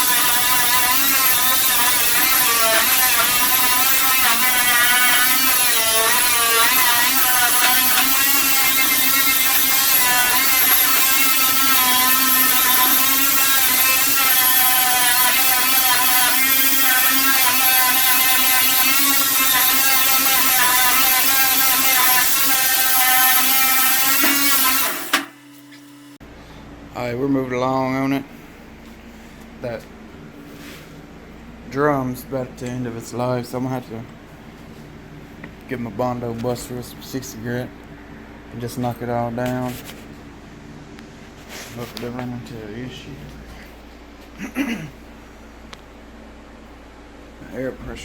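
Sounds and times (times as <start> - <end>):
power tool whining against bodywork: 0.0 - 26.2.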